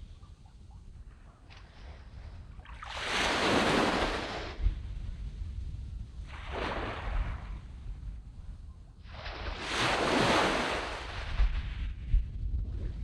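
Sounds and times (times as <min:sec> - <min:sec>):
wind rumble on microphone: 0:00.0 - 0:13.0
small waves breaking on sand: 0:01.8 - 0:04.7, 0:06.2 - 0:07.6, 0:09.0 - 0:11.9.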